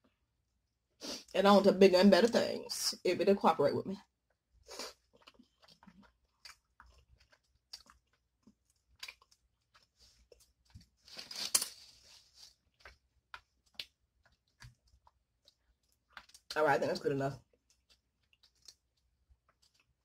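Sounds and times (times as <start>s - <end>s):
person slurping and chewing noodles: 4.3s - 16.6s, 17.4s - 20.0s.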